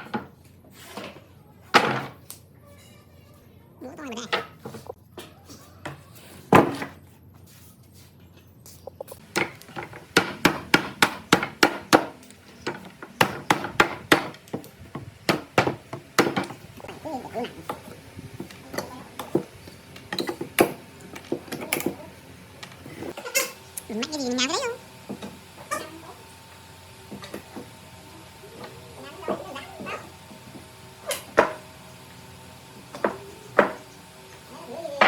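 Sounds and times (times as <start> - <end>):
hammer striking wood: 9.3 - 16.5, 33.0 - 33.9.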